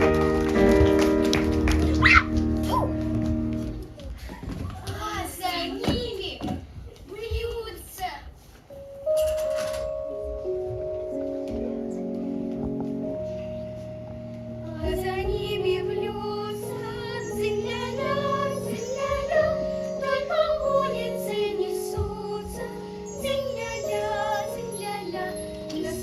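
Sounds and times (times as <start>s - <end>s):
instrumental backing track: 0.0s - 4.1s, 8.7s - 26.0s
high voices singing: 12.6s - 26.0s.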